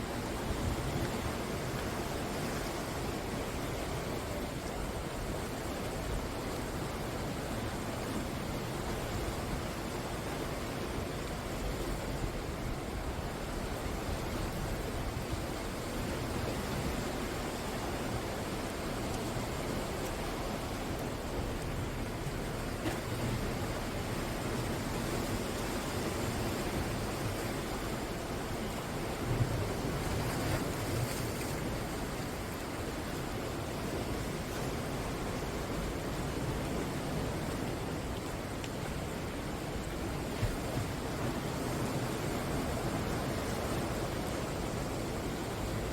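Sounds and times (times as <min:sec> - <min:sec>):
surf breaking on shore: 0:11.5 - 0:45.9.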